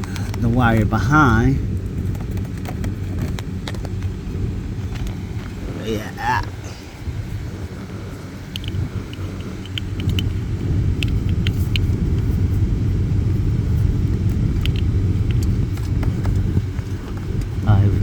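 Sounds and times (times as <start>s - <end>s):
light clicks and taps: 0.0s - 0.6s, 8.5s - 10.4s, 11.0s - 12.3s, 14.1s - 17.6s
steady low rumble: 0.0s - 18.0s.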